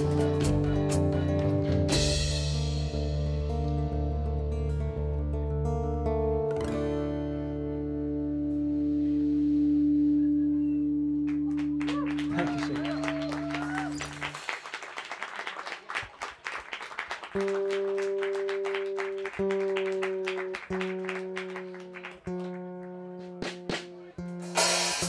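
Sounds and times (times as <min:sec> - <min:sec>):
audience clapping: 0:00.0 - 0:01.8, 0:11.2 - 0:24.0.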